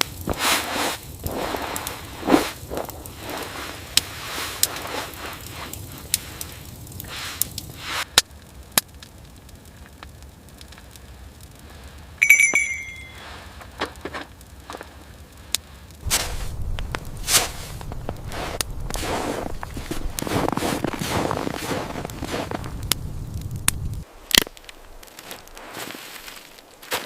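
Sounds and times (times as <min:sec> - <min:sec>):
wood fire crackling and popping: 0:00.0 - 0:27.0
ringing metallic clink: 0:12.2 - 0:13.3
rustling and scraping handling: 0:17.3 - 0:22.6, 0:25.2 - 0:27.0.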